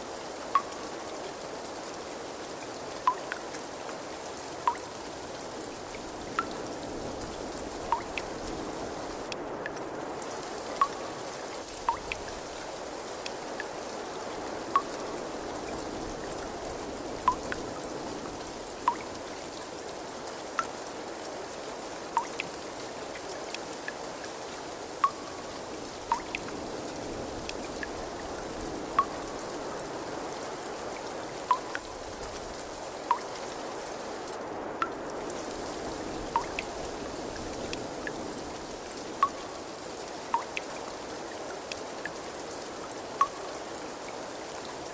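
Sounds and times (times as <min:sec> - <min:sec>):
water trickling: 0:00.0 - 0:44.9
water drops plinking: 0:00.5 - 0:00.9, 0:03.1 - 0:03.5, 0:04.7 - 0:05.0, 0:06.4 - 0:06.6, 0:07.9 - 0:08.3, 0:10.8 - 0:11.1, 0:11.8 - 0:12.3, 0:14.8 - 0:15.0, 0:17.2 - 0:17.6, 0:18.8 - 0:19.2, 0:22.2 - 0:22.5, 0:25.0 - 0:25.4, 0:26.1 - 0:26.5, 0:28.9 - 0:29.3, 0:31.5 - 0:31.9, 0:33.1 - 0:33.4, 0:36.3 - 0:36.7, 0:39.2 - 0:39.5, 0:40.3 - 0:40.7, 0:43.2 - 0:43.4.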